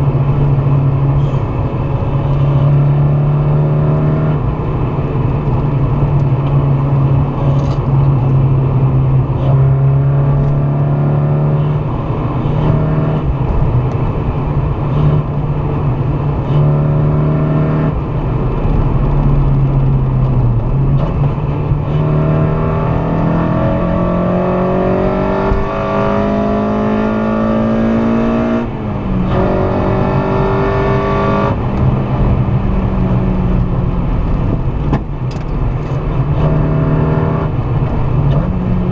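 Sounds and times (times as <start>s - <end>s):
car engine revving: 0.0s - 38.9s
road noise: 0.0s - 38.9s.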